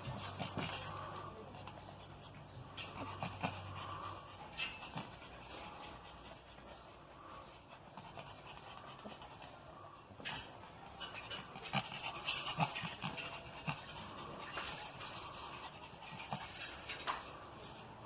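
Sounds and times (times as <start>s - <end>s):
dog panting: 0.0s - 18.0s
light clicks and rustles: 10.1s - 18.0s.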